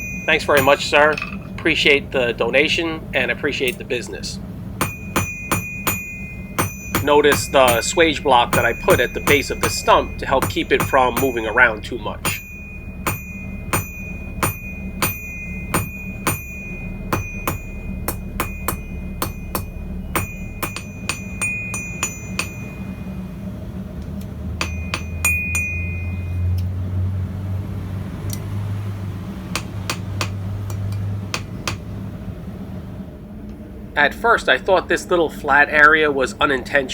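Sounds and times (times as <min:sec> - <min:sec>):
hammer striking steel on anvil: 0:00.0 - 0:01.7, 0:04.8 - 0:23.1, 0:24.6 - 0:26.6, 0:29.5 - 0:31.9
low steady hum: 0:00.0 - 0:36.9.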